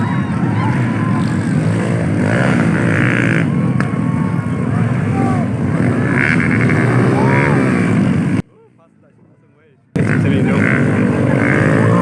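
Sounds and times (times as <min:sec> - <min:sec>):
dirt bike engines revving: 0:00.0 - 0:09.2, 0:09.9 - 0:12.0.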